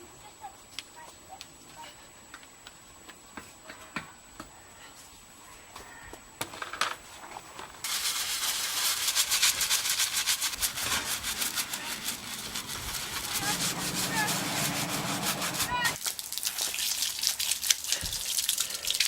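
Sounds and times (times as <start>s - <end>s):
fast hand rubbing strokes: 7.8s - 16.0s.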